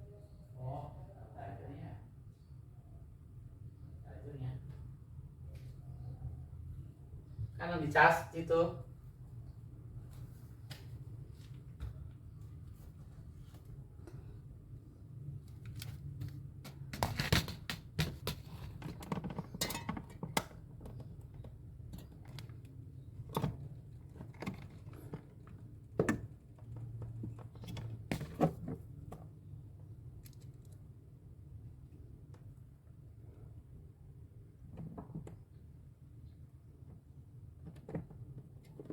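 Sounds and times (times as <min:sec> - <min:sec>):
hands handling tools and parts: 0:15.5 - 0:21.0.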